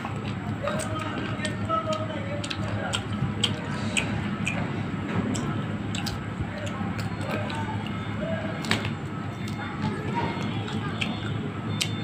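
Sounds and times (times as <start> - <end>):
crunching bites: 0.1 - 12.0
wet mouth smacks: 2.4 - 8.0.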